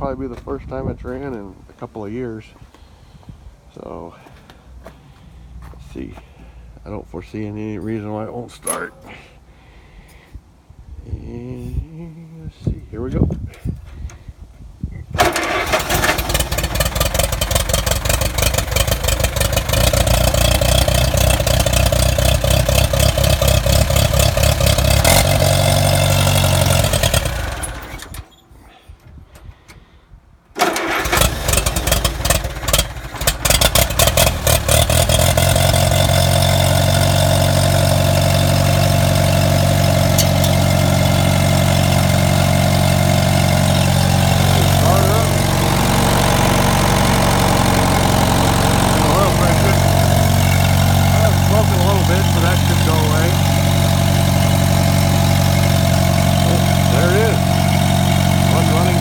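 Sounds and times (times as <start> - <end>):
tractor engine starting and idling: 6.6 - 9.4, 15.1 - 59.0.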